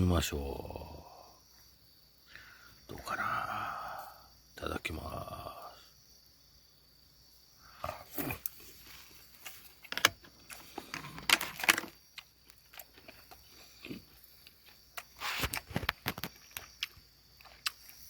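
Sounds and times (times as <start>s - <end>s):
person chewing: 7.8s - 9.6s, 12.1s - 18.0s.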